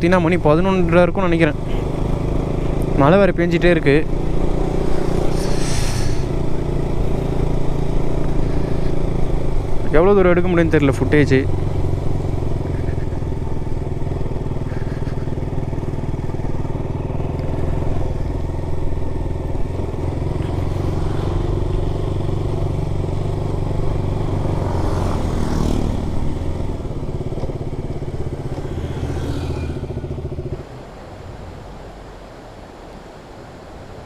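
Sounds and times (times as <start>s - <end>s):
motorcycle engine running: 0.0s - 30.8s
rising whoosh: 27.6s - 30.6s.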